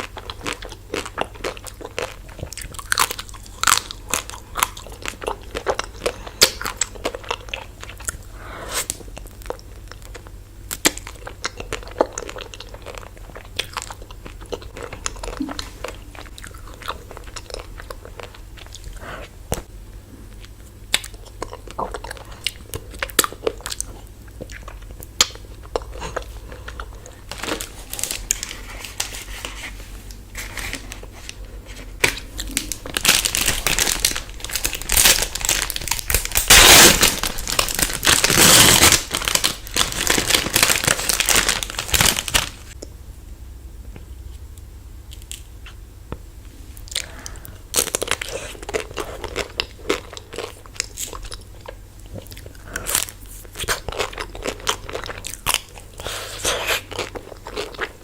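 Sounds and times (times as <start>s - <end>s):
biting and chewing ice cream: 0.0s - 42.9s, 46.8s - 58.0s
plastic wrapper crinkling: 26.2s - 42.8s.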